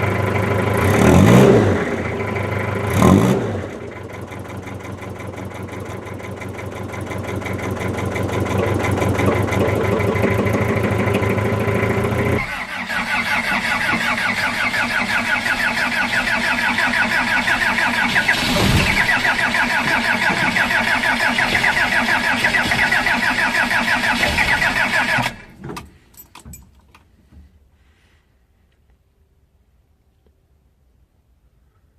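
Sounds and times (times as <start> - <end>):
diesel engine running: 0.0 - 25.6
engine knocks: 1.5 - 12.5, 13.5 - 26.7.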